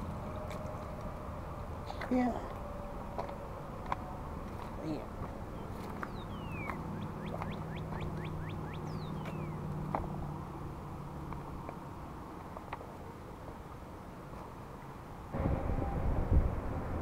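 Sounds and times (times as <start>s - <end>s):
birds calling: 2.6s - 10.4s
low hum: 15.1s - 17.0s.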